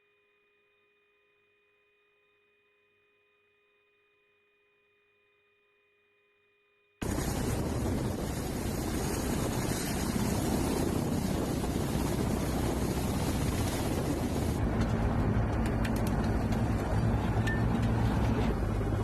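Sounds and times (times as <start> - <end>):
helicopter rotors and engines: 7.0 - 19.0.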